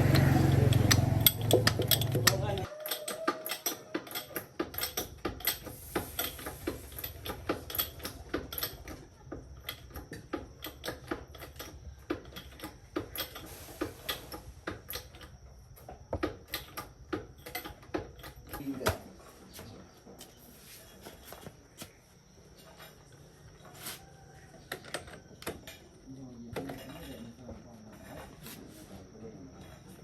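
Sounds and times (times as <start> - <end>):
hand tools clicking on metal: 0.0 - 19.0.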